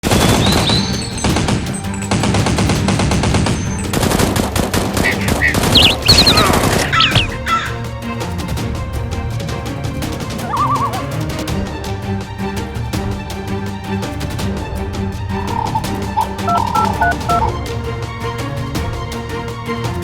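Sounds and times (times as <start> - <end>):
rapid automatic gunfire: 0.0 - 6.8
background music: 0.0 - 20.0.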